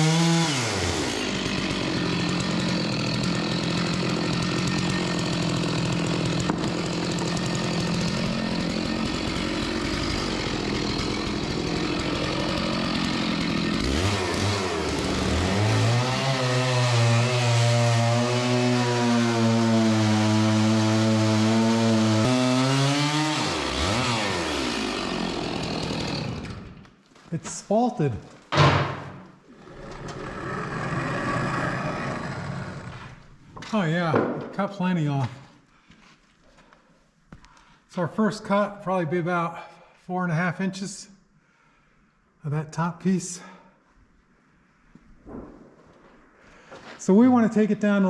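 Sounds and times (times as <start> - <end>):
chainsaw cutting log: 0.0 - 26.9, 28.6 - 34.6.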